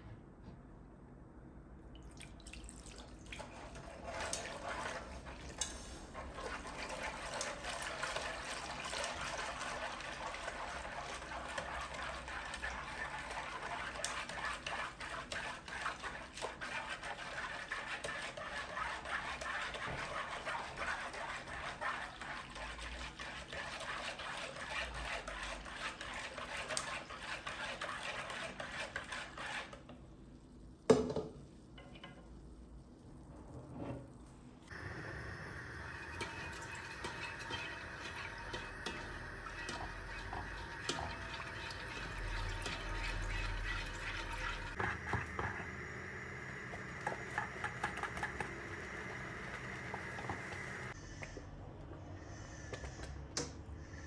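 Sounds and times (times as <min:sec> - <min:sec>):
running water with splashes: 0:34.7 - 0:51.0.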